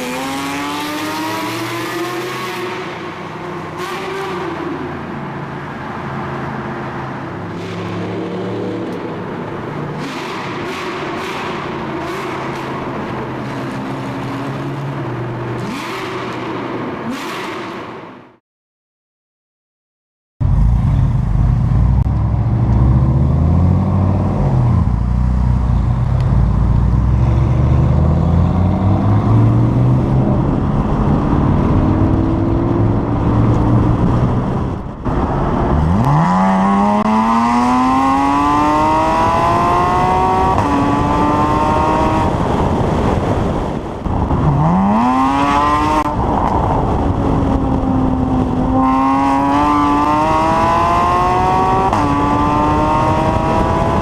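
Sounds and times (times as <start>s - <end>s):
car engine accelerating: 20.4s - 42.8s, 44.1s - 54.0s.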